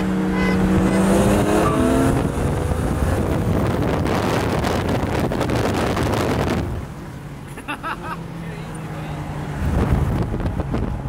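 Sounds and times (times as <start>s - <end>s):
car engine revving hard: 0.0s - 6.9s.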